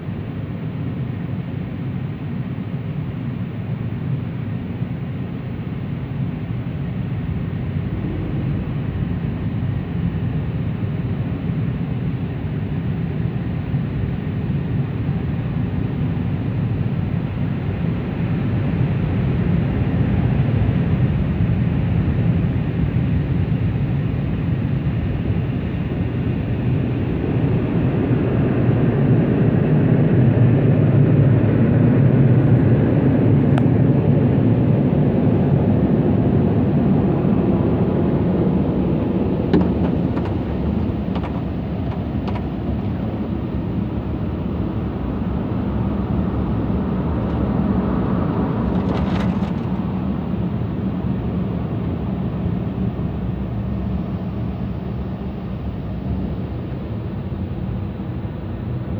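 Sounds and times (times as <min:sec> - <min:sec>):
clicks and knocks: 0:39.5 - 0:43.1.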